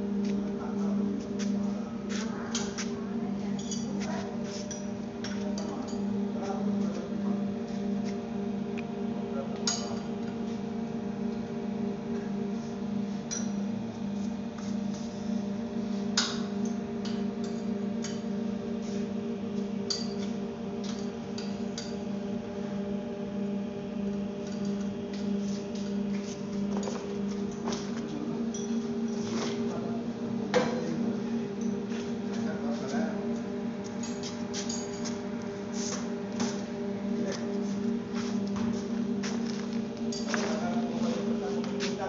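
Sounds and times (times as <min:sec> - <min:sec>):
pulverizer droning hum: 0:00.0 - 0:42.0.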